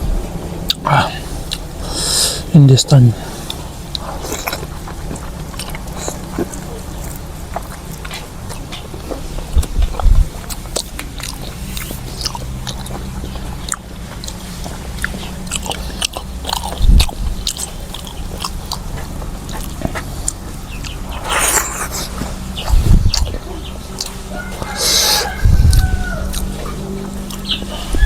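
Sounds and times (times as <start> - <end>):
person chewing food: 0.0 - 28.0
dull low thumps: 3.1 - 10.6, 14.8 - 24.0, 25.4 - 26.8.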